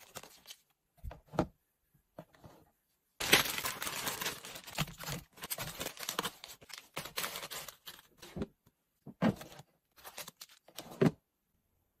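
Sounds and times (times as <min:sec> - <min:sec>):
plastic packaging crinkling: 0:00.0 - 0:00.6, 0:03.2 - 0:08.2.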